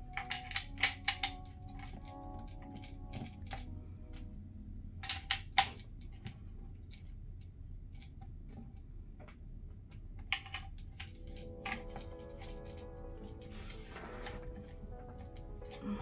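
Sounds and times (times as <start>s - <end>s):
coins clicking and clinking: 0.1s - 3.6s.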